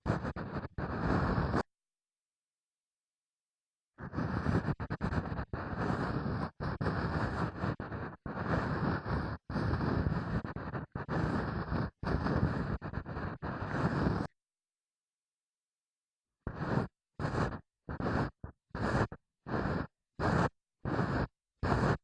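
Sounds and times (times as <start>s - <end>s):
ear pick scraping microphone: 0.0s - 1.7s.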